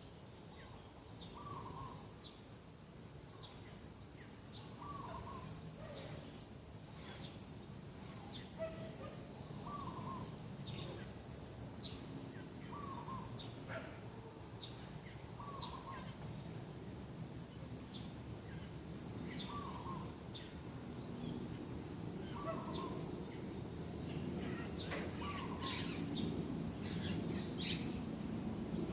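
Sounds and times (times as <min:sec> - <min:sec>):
small birds chirping: 0:03.3 - 0:28.1
doves cooing: 0:04.8 - 0:06.2, 0:08.0 - 0:10.4, 0:12.7 - 0:14.3, 0:22.3 - 0:23.0, 0:24.4 - 0:26.1.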